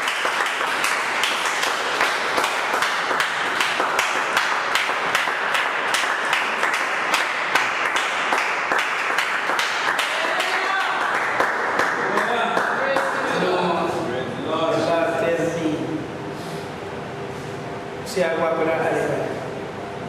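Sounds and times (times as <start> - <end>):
congregation clapping: 0.0 - 13.2.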